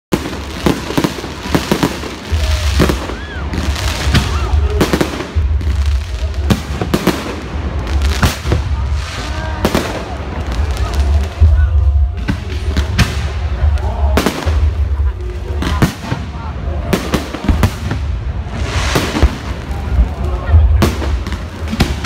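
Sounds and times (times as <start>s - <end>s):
fireworks bursting in sharp bangs: 0.1s - 22.0s.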